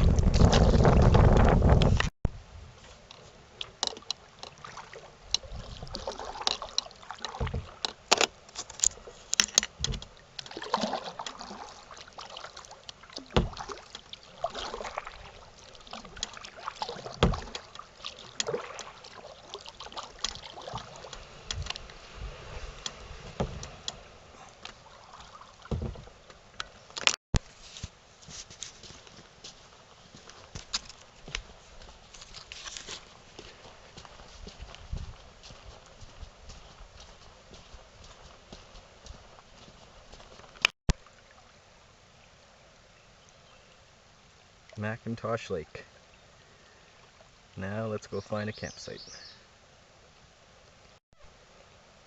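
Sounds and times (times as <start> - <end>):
paddle splashing in water: 0.0 - 2.1, 2.8 - 29.0
water dripping: 9.6 - 22.2.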